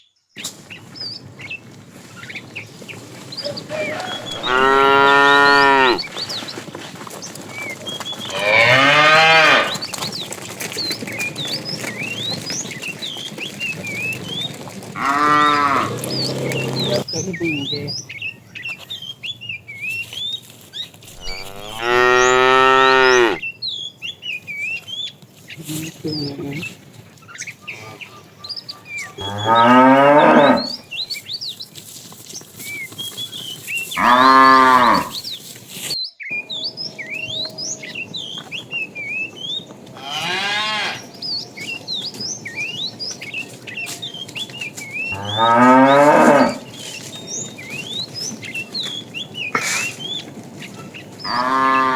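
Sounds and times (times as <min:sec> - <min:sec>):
cow mooing: 0:03.7 - 0:06.0, 0:08.3 - 0:09.8, 0:15.0 - 0:17.0, 0:21.1 - 0:23.4, 0:29.2 - 0:30.8, 0:34.0 - 0:35.1, 0:40.0 - 0:41.1, 0:45.1 - 0:46.7, 0:51.3 - 0:51.9.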